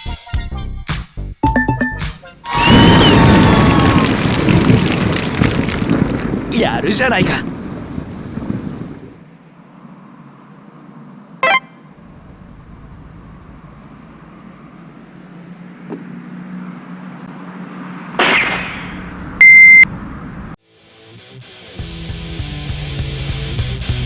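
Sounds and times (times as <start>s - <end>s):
electronic beep: 1.4s - 2.1s, 11.4s - 11.8s, 19.4s - 19.9s.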